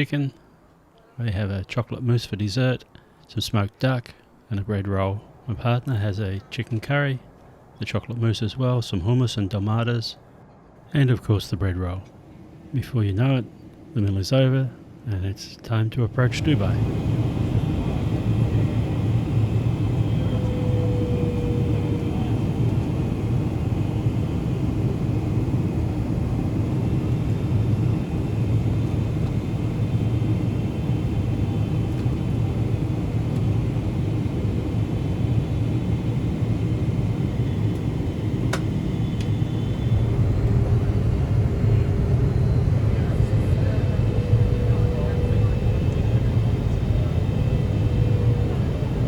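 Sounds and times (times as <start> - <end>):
airplane cabin engine rumble: 11.2 - 49.0
airflow past fuselage: 16.2 - 49.0.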